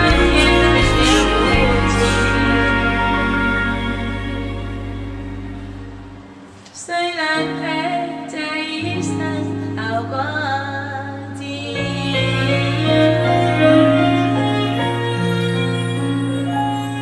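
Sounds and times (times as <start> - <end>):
woman singing: 0.0 - 4.8, 6.8 - 16.0
sustained bass notes: 0.0 - 6.5, 11.4 - 17.0
held instrumental chords: 0.0 - 6.6, 9.0 - 17.0.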